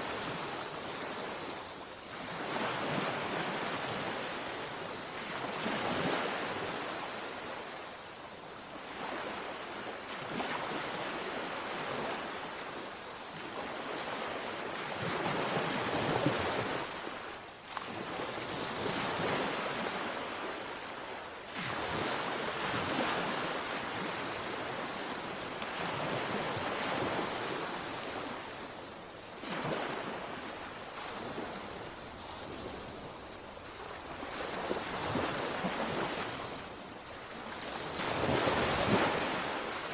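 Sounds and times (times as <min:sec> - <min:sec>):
sea waves washing onto shore: 0:00.0 - 0:39.9
wind noise on microphone: 0:21.5 - 0:39.9.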